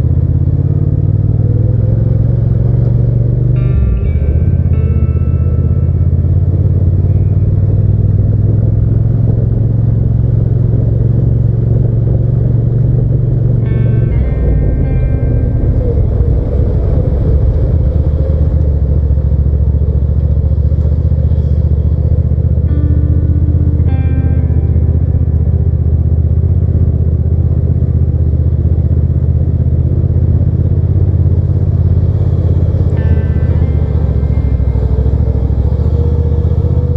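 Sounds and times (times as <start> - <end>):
motorcycle engine droning: 0.0 - 36.9
road noise: 0.0 - 36.9
wind noise: 3.6 - 27.0.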